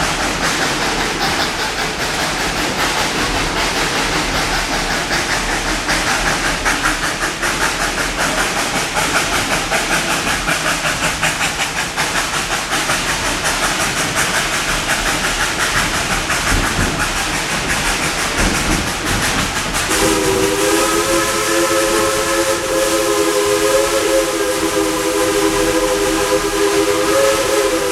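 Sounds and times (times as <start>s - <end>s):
steam train chugging: 0.0s - 27.9s
steam whistle blowing: 19.9s - 27.9s.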